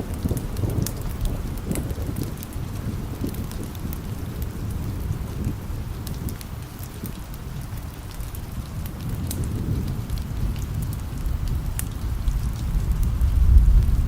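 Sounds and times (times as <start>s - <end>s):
steady rain: 0.0s - 14.0s
wood fire crackling: 0.0s - 14.0s
distant thunder rumbling: 8.6s - 14.0s.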